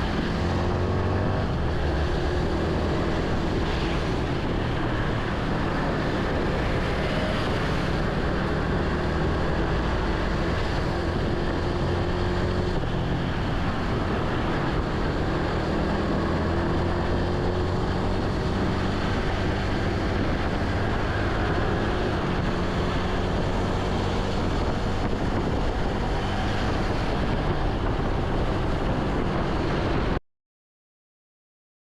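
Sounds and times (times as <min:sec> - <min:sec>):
wind rushing over microphone: 0:00.0 - 0:30.2.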